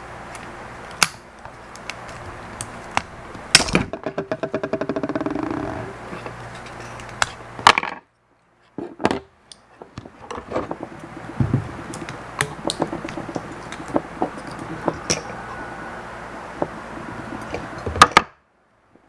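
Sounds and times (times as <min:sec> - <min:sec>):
low steady hum: 0:00.0 - 0:19.0
tools and plastic parts clicking: 0:09.5 - 0:15.4.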